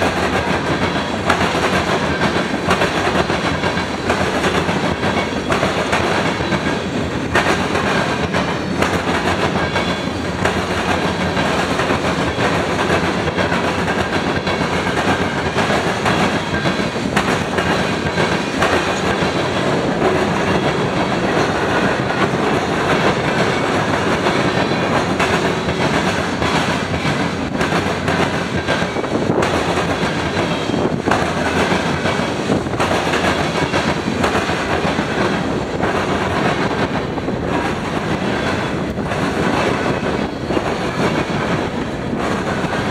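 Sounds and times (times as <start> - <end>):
wheels clicking over rail joints: 0.0 - 42.9
wheels rumbling on rail: 0.0 - 42.9.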